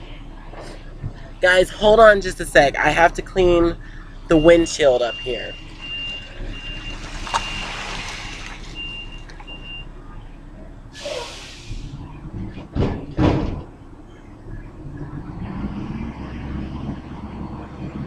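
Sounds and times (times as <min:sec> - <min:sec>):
short hiss: 0:11.0 - 0:12.0
heavy thuds: 0:12.5 - 0:13.8.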